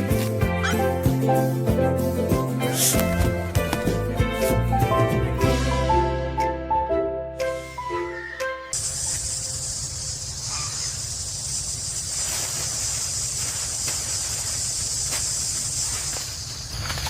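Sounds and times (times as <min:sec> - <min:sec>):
music: 0:00.0 - 0:08.8
high hiss: 0:08.7 - 0:17.0.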